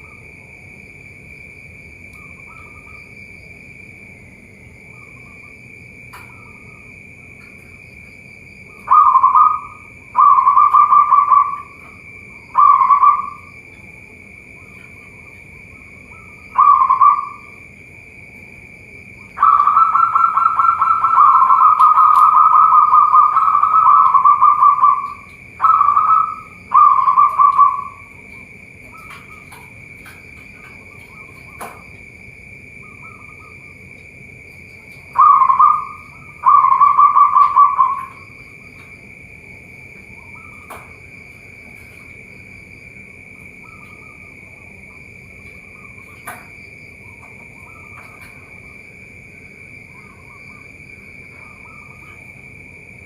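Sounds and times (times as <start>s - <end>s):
dove cooing: 8.6s - 13.9s, 14.5s - 17.7s, 19.2s - 31.9s, 34.8s - 38.9s, 47.0s - 48.8s.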